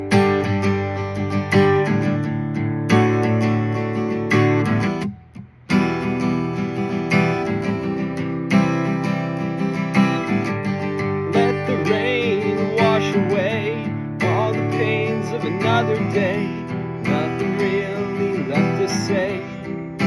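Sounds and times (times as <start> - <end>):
acoustic guitar strumming: 0.0 - 20.0
person singing: 11.1 - 20.0.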